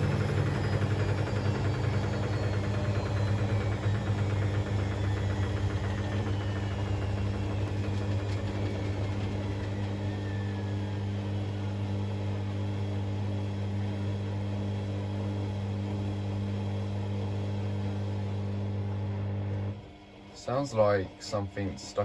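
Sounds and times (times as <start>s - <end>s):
rattle in drum: 0.0s - 10.3s
washing machine spinning: 0.0s - 22.0s.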